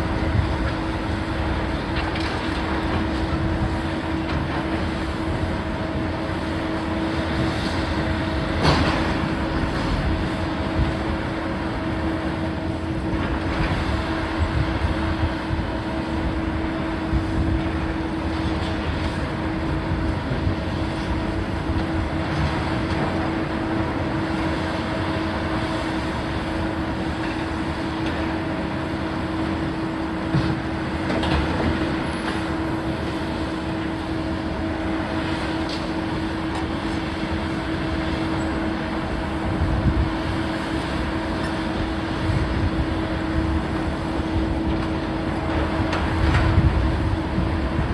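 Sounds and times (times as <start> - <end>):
heavy machinery droning: 0.0 - 47.9.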